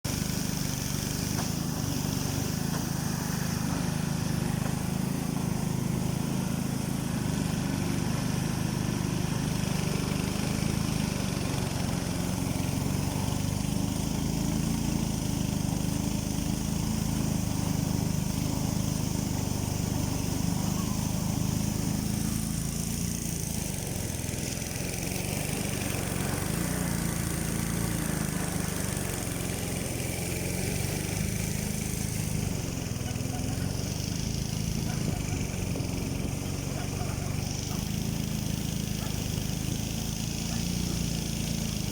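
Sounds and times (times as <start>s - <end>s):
engine running steadily: 0.0s - 41.9s.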